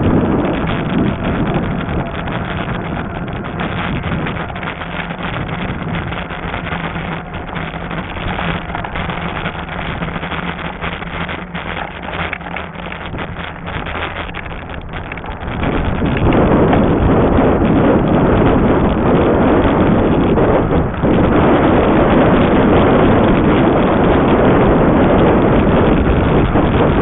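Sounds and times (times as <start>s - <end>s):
steady low hum: 0.0s - 27.0s
tyre rumble: 0.0s - 27.0s
wind buffeting microphone: 0.0s - 27.0s.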